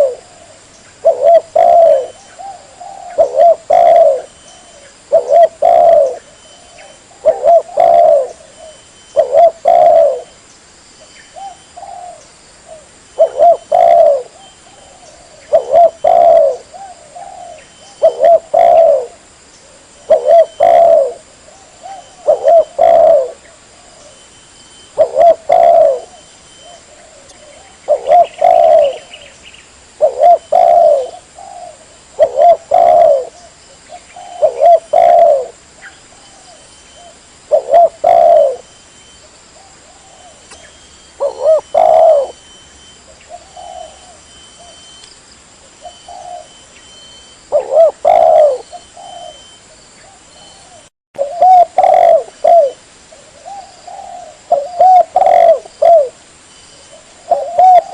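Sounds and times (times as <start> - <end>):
dove cooing: 0.0 - 10.4, 11.3 - 38.8, 39.5 - 45.0, 45.7 - 56.2, 56.8 - 57.9.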